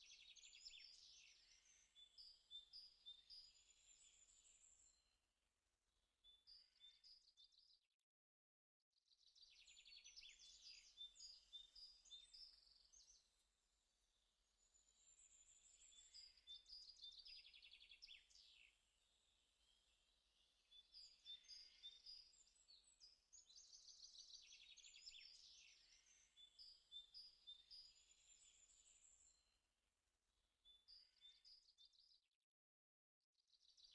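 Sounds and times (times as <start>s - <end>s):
birds chirping and trilling: 14.7s - 29.4s.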